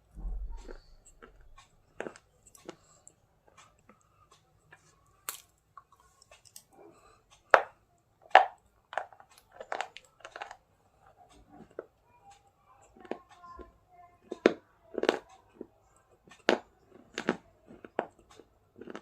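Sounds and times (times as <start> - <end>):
chalk crunching being chewed: 0.6 - 3.0, 9.4 - 10.6, 16.4 - 19.0.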